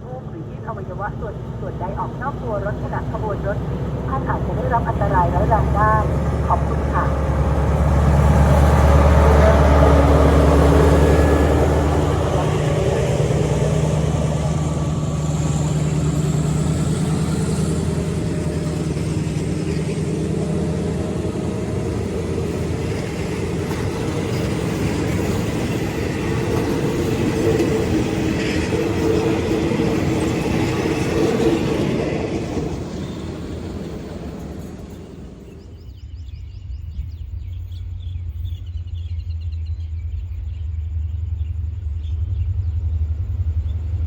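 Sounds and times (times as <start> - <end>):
locomotive engine drone: 0.0 - 44.0
rumble of train coaches: 0.0 - 44.0.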